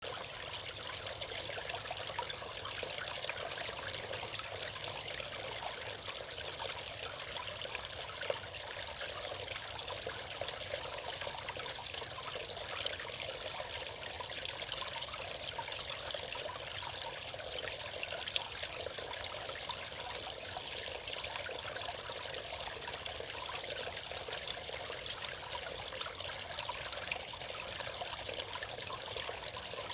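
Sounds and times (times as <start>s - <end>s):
water trickling over cascade: 0.0s - 29.9s.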